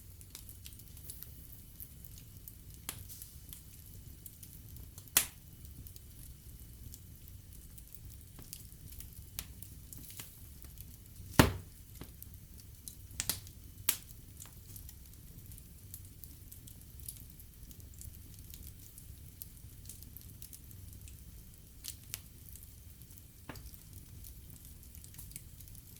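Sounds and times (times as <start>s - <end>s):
fire crackles: 0.0s - 25.9s
wood fire rumbling: 0.0s - 25.9s
fire pops: 0.2s - 7.0s, 7.6s - 15.0s, 21.8s - 25.8s.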